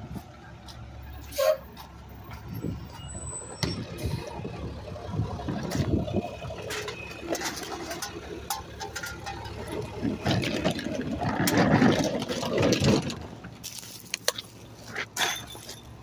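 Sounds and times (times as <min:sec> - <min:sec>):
garbage truck engine running: 0:00.0 - 0:16.0
rough mechanical noise: 0:02.3 - 0:16.0.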